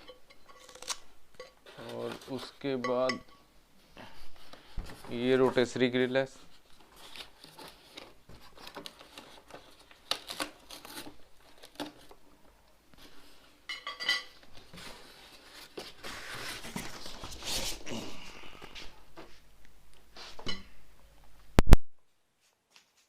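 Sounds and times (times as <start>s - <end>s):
plastic wrapping crinkling: 5.1s - 12.3s.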